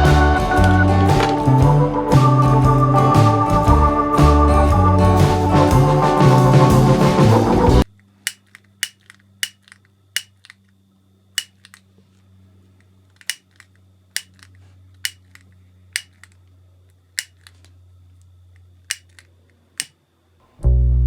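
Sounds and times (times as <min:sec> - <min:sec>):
hand tools snipping plastic: 0:08.3 - 0:10.6, 0:11.4 - 0:11.8, 0:13.2 - 0:16.4, 0:17.2 - 0:17.6, 0:18.9 - 0:19.9.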